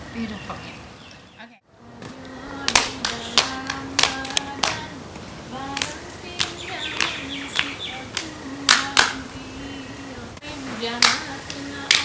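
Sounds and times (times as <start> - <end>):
sung chant: 1.7 - 12.0
hand claps and body slaps: 2.0 - 4.8, 5.8 - 9.2, 11.0 - 12.0.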